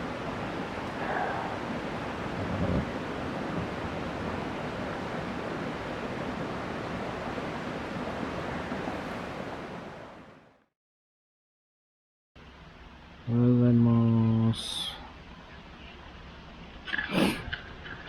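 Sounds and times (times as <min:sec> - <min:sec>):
wind rushing: 0:00.0 - 0:10.1.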